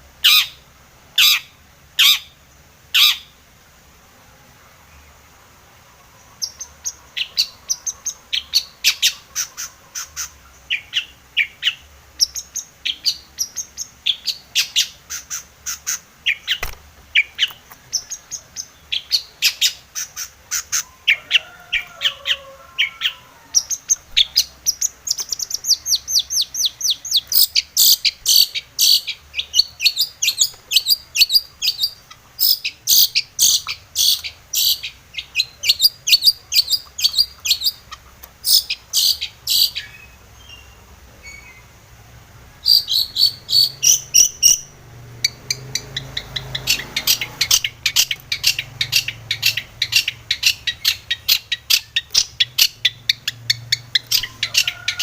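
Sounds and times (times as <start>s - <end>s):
shrike song chatter: 4.0s - 55.0s.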